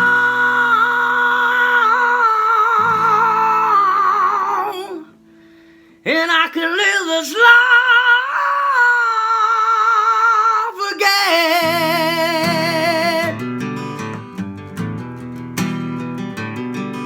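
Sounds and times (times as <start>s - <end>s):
person singing with vibrato: 0.0s - 5.2s, 6.0s - 13.4s
acoustic guitar notes: 0.0s - 7.7s, 11.1s - 17.0s.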